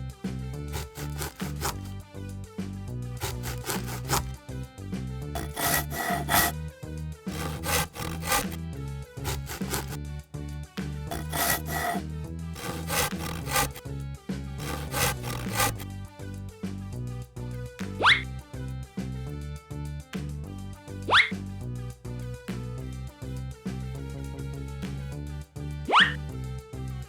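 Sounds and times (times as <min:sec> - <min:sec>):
rasping scraping strokes: 0:00.7 - 0:02.0, 0:03.2 - 0:04.4, 0:05.4 - 0:06.6, 0:07.3 - 0:08.6, 0:09.2 - 0:10.0, 0:11.1 - 0:12.0, 0:12.6 - 0:13.8, 0:14.6 - 0:15.9.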